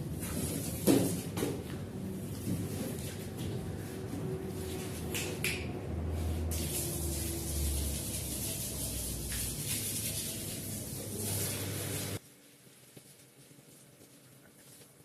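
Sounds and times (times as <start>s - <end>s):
cleaning machine motor hum: 5.7s - 12.2s
water spraying onto rug: 6.0s - 12.2s.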